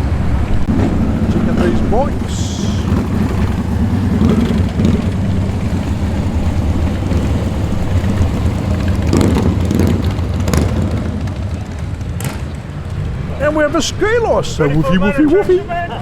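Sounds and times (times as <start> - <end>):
motorcycle engines idling: 0.0 - 16.0.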